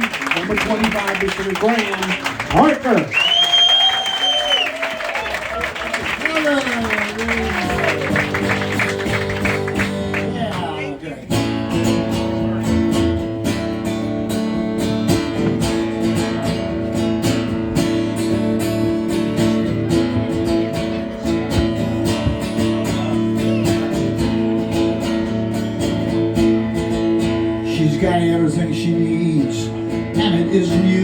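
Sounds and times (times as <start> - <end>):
live band playing: 6.8 - 28.6
strummed acoustic guitar: 7.6 - 31.0.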